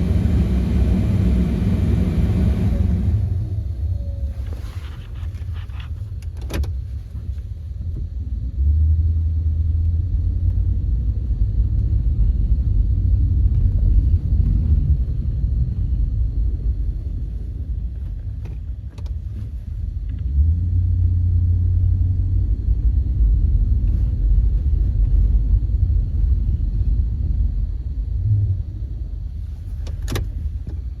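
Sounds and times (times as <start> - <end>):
pickup engine rumbling: 0.0 - 7.4.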